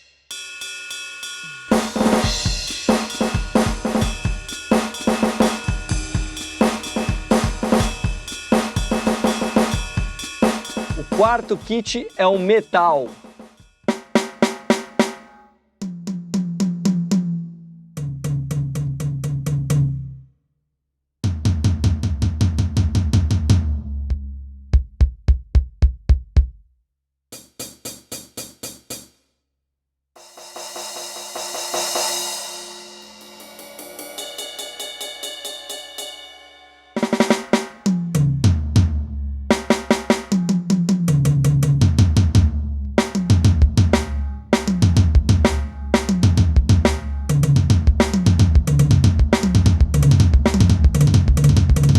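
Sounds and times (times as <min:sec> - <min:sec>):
crash cymbal ringing: 0:00.0 - 0:15.3, 0:30.2 - 0:37.9
bass drum strokes: 0:01.5 - 0:12.3, 0:37.2 - 0:51.9
electronic drum grooves: 0:01.7 - 0:15.3, 0:24.8 - 0:26.6, 0:39.5 - 0:51.9.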